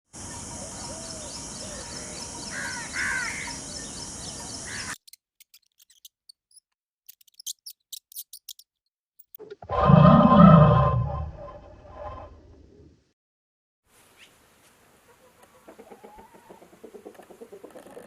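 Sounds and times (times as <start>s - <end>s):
hissy outdoor ambience: 0.1s - 5.0s, 13.9s - 18.0s
harsh bird calls: 0.2s - 5.0s
birds calling: 0.2s - 8.7s.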